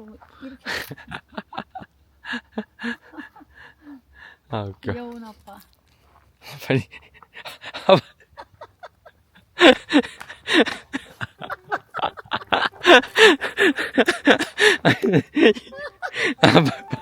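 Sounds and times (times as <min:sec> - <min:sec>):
people laughing hard: 0:07.6 - 0:17.0.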